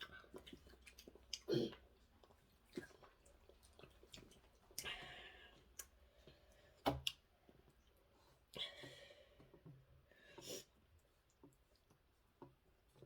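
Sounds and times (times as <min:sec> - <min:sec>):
mouth clicks while chewing: 0:05.7 - 0:06.0, 0:06.8 - 0:07.3.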